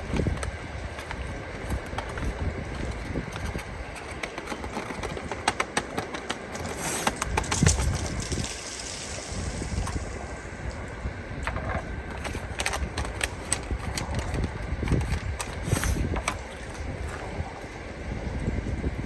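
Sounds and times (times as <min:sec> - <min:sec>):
clattering rustle: 0:00.0 - 0:10.2
wind rumble on microphone: 0:00.0 - 0:19.0.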